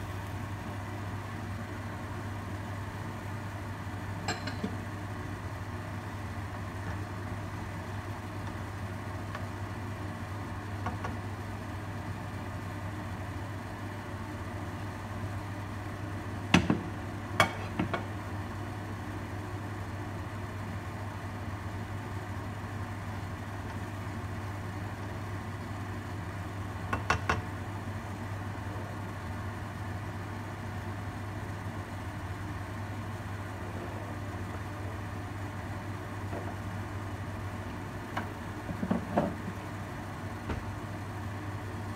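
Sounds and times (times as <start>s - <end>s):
egg and kimchi frying in a wok: 0.0s - 41.9s
low kitchen hum: 0.0s - 41.9s.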